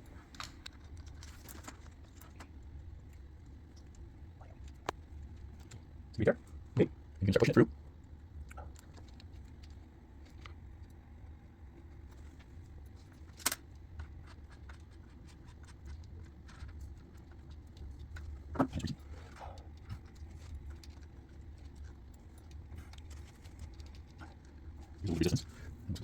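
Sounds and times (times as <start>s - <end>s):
low steady hum: 0.0s - 26.0s
cable clicking and rattling: 0.3s - 4.0s.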